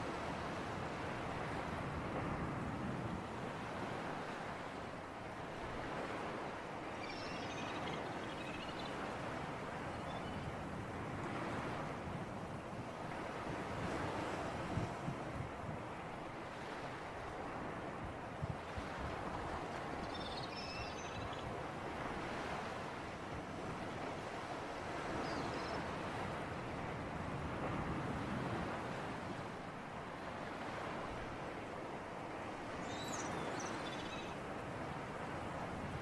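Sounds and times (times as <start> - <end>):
sea surf: 0.0 - 36.0
faint high chirps: 6.9 - 9.0, 32.8 - 34.4.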